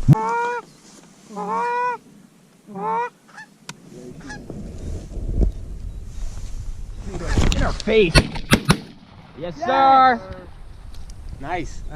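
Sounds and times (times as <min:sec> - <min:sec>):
goose honking: 0:00.1 - 0:00.6, 0:01.3 - 0:02.0, 0:02.7 - 0:03.5, 0:04.1 - 0:04.5.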